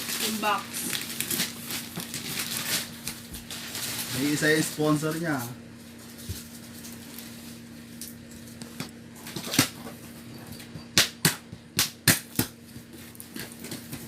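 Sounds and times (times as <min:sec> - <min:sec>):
tape and cardboard ripping: 0:00.0 - 0:04.4.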